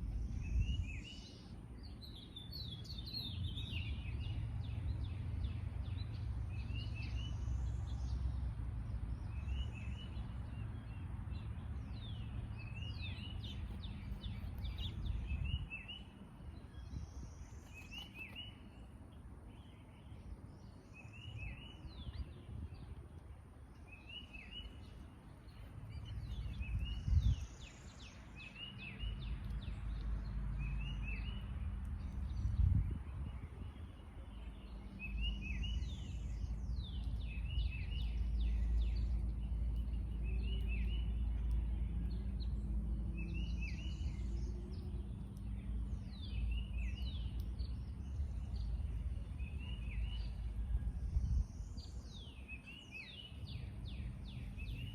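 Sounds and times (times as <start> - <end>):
steady low rumble: 0.0 - 17.7
small birds chirping: 0.0 - 54.9.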